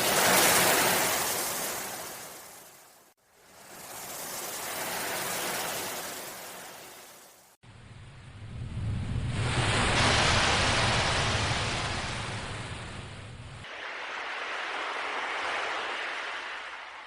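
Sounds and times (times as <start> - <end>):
ocean waves breaking: 0.0 - 7.4, 8.7 - 17.0.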